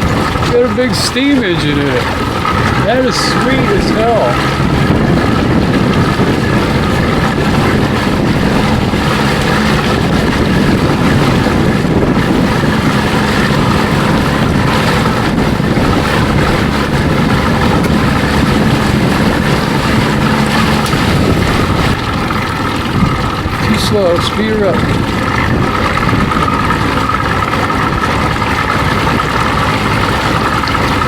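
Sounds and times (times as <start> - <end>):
outboard motor running: 0.0 - 31.0
wind on microphone: 0.0 - 31.0.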